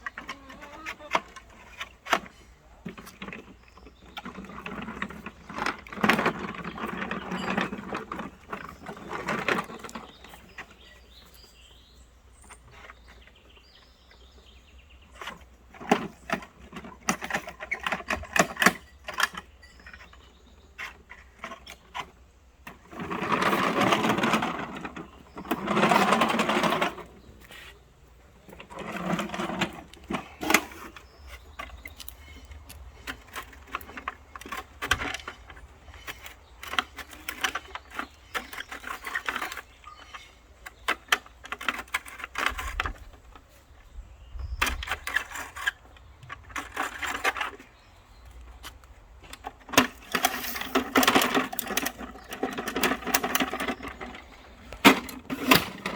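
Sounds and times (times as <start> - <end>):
clattering and knocks: 49.3 - 55.9.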